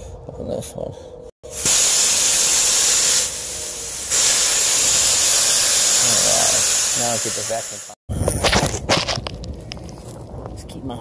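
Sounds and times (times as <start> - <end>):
pressurised gas hissing from valve: 1.4 - 8.0.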